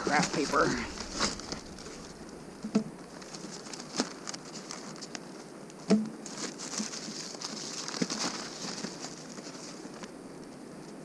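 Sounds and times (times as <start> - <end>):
paper rustling: 3.1 - 5.4, 6.2 - 10.1.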